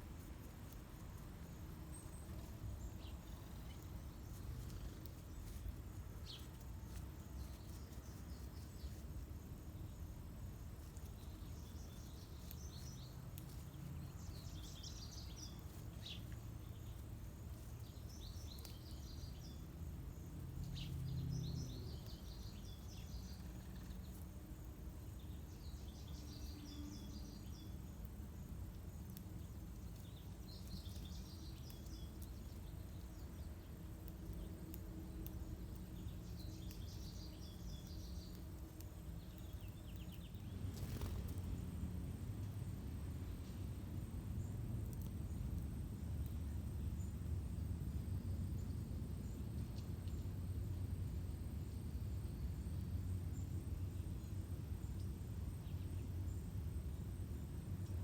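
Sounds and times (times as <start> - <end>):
low outdoor rumble: 0.0 - 58.0
small songbirds chirping: 0.0 - 58.0.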